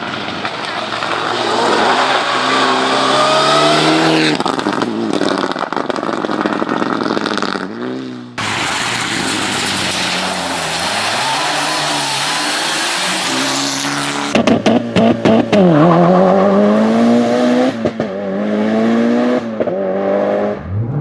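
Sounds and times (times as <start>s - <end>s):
exhaust crackling: 0.0s - 18.1s
car engine revving: 0.7s - 21.0s.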